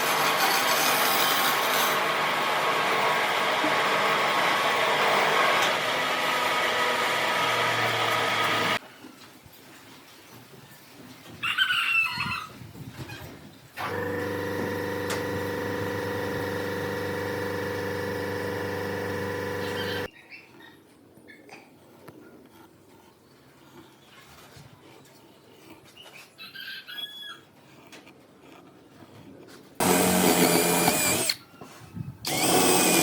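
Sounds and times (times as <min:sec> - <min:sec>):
power tool running loudly: 0:01.2 - 0:08.8, 0:13.8 - 0:20.1, 0:29.8 - 0:31.4, 0:32.3 - 0:33.0
machine humming steadily: 0:13.8 - 0:20.1.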